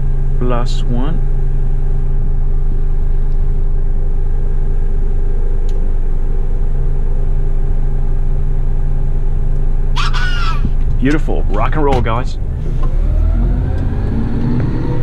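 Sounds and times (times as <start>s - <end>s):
truck diesel engine droning: 9.8s - 15.0s.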